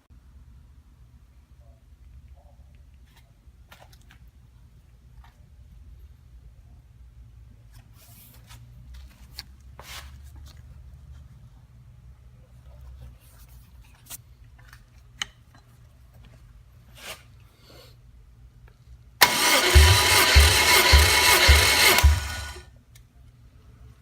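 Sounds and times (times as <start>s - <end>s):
engine cranking by starter: 19.2s - 22.6s.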